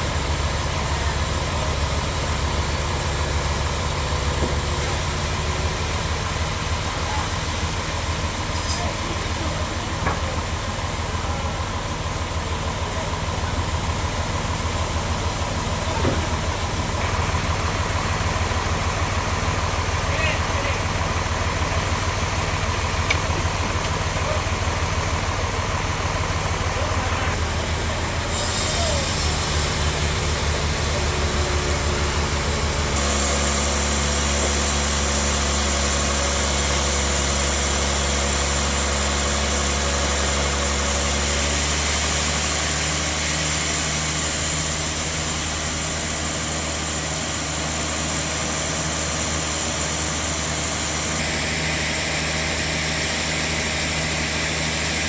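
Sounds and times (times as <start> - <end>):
sawmill engine drone: 0.0 - 55.0
band saw blade hissing: 28.1 - 55.0.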